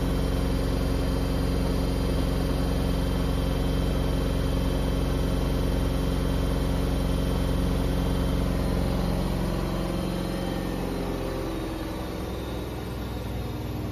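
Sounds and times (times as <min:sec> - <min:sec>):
washing machine motor hum: 0:00.0 - 0:13.9.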